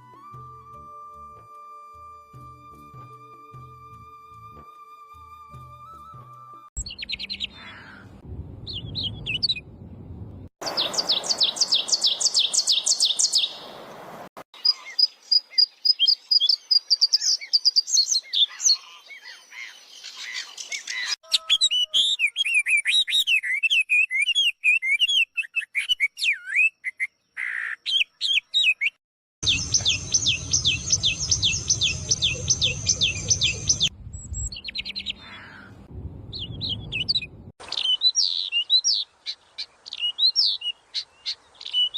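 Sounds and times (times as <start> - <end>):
birds singing and chirping: 6.8 - 8.0, 10.6 - 13.7, 14.6 - 41.9.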